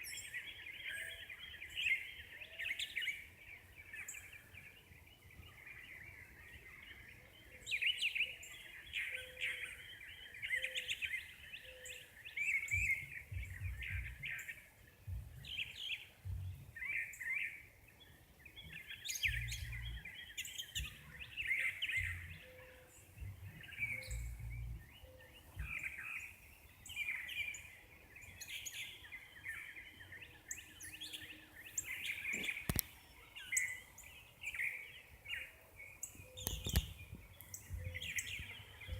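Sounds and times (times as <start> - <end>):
birds chirping and singing: 0.0 - 38.9
low rumbles: 23.2 - 24.8.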